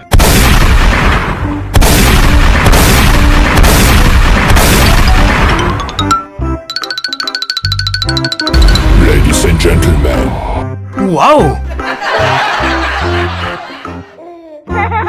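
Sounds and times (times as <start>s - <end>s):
music: 0.0s - 15.0s
loud booming blast: 0.1s - 5.8s.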